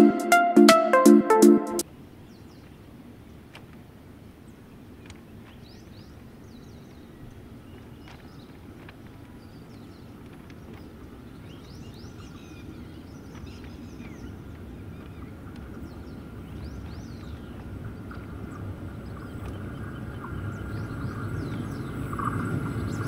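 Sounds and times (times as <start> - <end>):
birds chirping: 4.2 - 23.0
train rumbling on rails: 7.4 - 23.0.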